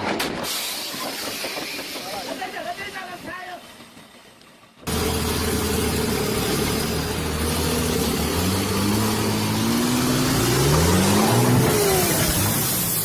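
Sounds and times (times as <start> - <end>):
vehicle engine accelerating: 4.9 - 13.0.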